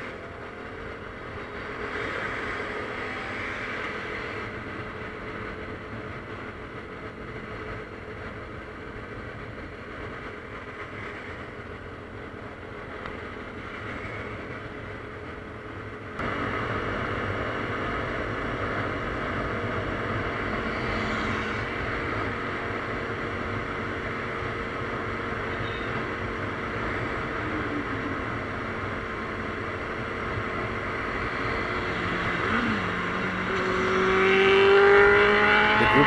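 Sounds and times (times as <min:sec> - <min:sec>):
motorcycle engine drone: 0:16.2 - 0:36.0.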